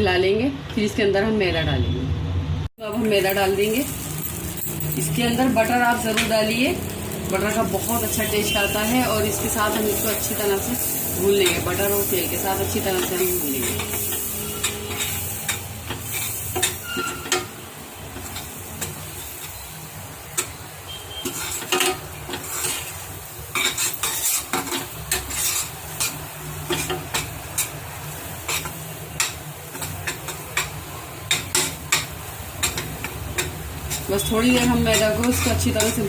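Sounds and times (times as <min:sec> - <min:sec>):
flour sizzling in a pan: 0:02.8 - 0:36.0
utensil scraping a pan: 0:08.2 - 0:17.6, 0:20.9 - 0:27.8, 0:28.4 - 0:36.0.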